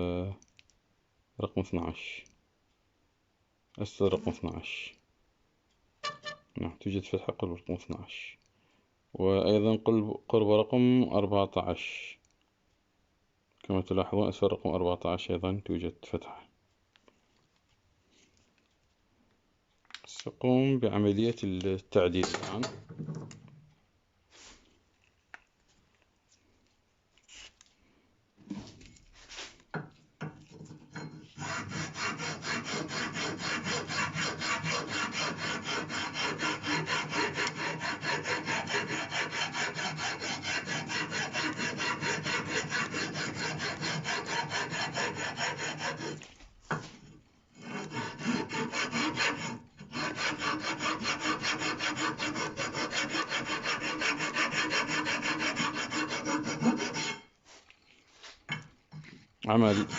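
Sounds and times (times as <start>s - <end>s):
hand file rasping on steel: 31.0s - 46.3s, 47.5s - 57.3s, 59.6s - 59.9s.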